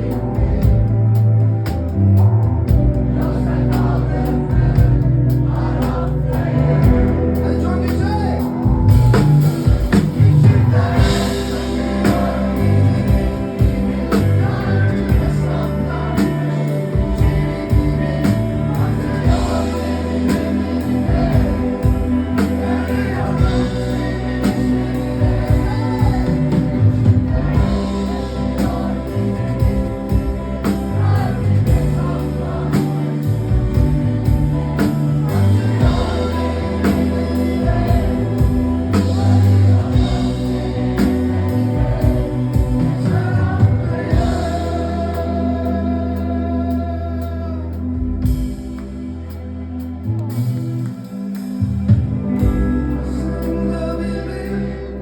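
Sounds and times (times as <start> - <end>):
bass: 0.0 - 55.0
drumbeat: 8.6 - 15.6.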